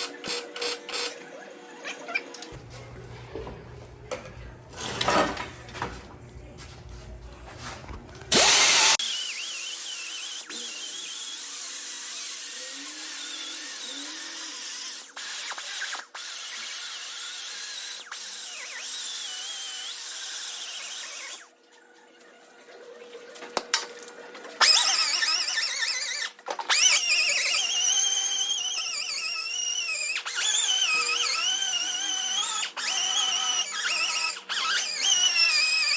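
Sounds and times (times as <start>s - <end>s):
power tool cutting steel tubing: 0.0s - 1.2s, 8.3s - 21.5s, 24.6s - 35.9s.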